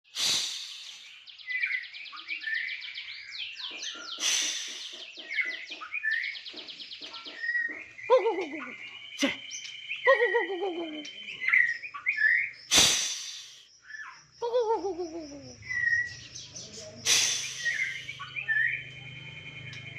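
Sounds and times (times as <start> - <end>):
songbird singing: 0.1 - 19.9
short noisy bursts: 12.7 - 13.6.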